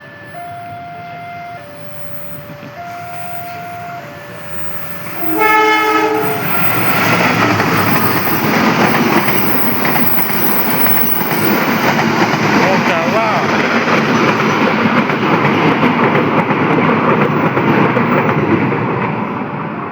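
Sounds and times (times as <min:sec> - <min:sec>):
locomotive horn: 0:00.0 - 0:08.4
level crossing alarm: 0:00.0 - 0:18.6
train rumble and wheel clatter: 0:00.0 - 0:19.9.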